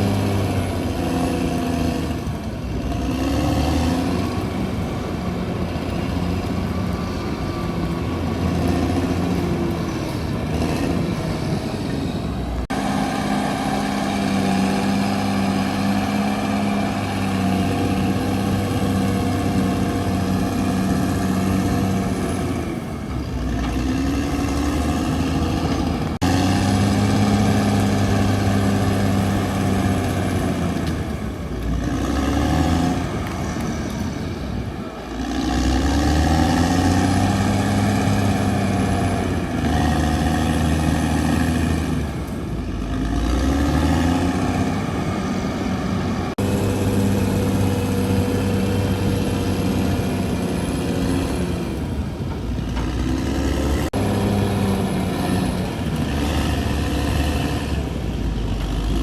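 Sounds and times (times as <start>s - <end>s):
bulldozer diesel engine under load: 0.0s - 59.0s.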